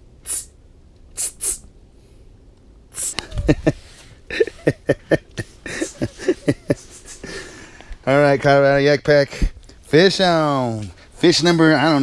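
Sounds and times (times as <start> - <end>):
man making short vocal sounds: 1.2 - 1.6, 2.9 - 3.8
breathy hiss: 2.9 - 8.1.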